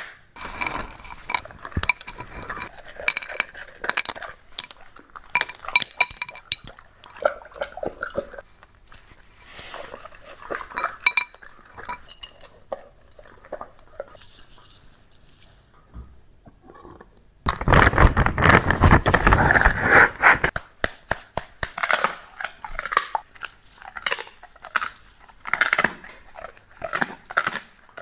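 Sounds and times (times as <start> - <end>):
dishes and cutlery clinking: 0.4 - 8.4, 10.4 - 14.3.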